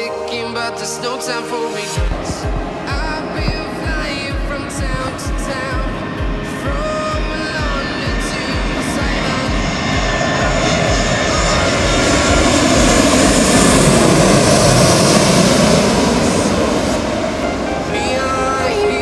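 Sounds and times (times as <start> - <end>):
jet airliner passing: 0.0 - 19.0.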